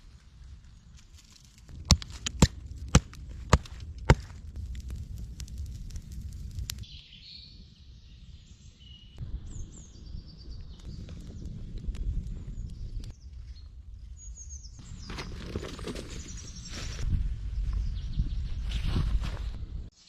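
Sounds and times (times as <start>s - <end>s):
low rumble: 1.5s - 6.9s, 9.2s - 14.2s
bird chirping: 6.8s - 11.1s.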